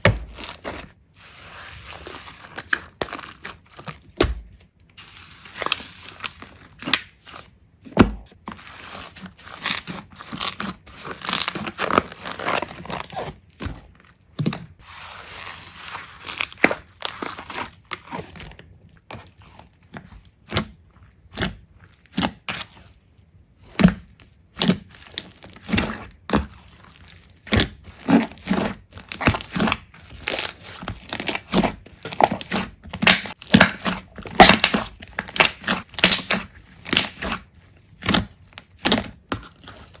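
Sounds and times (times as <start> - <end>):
slime popping and crackling: 27.4 - 37.4.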